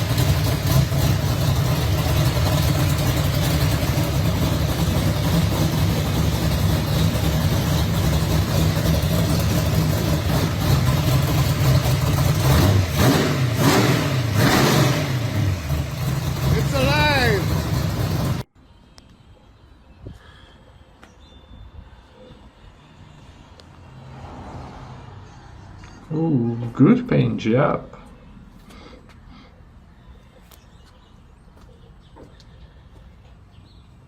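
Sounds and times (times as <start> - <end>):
drag car engine idling and revving: 0.0 - 18.5.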